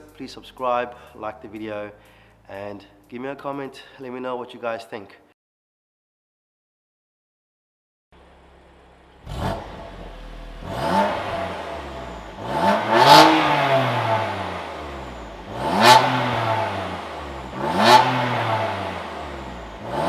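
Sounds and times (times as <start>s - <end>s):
car engine revving: 8.2s - 20.0s.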